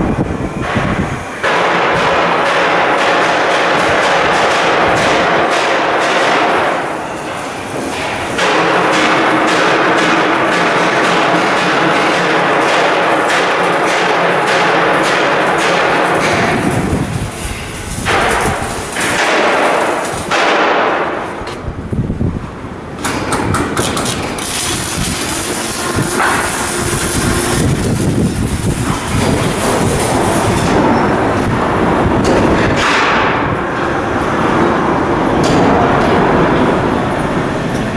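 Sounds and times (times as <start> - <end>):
machinery clatter: 0.0 - 37.9
metal hammering: 0.7 - 21.6, 23.0 - 31.0.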